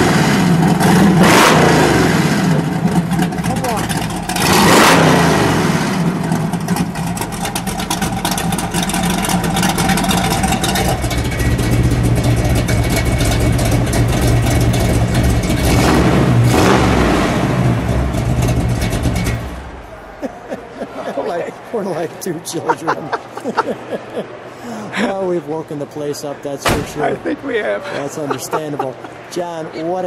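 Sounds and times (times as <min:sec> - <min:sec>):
car engine idling and revving: 0:00.0 - 0:19.9.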